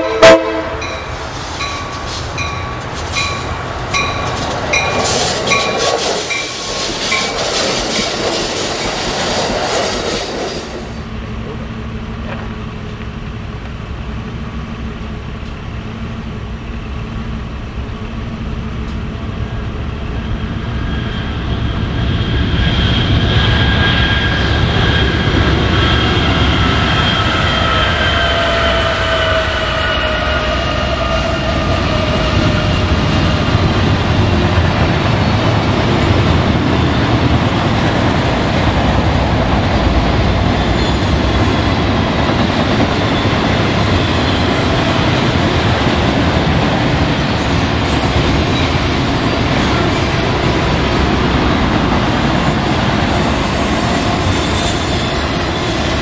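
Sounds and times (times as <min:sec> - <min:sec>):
low diesel drone: 0:10.9 - 0:53.1.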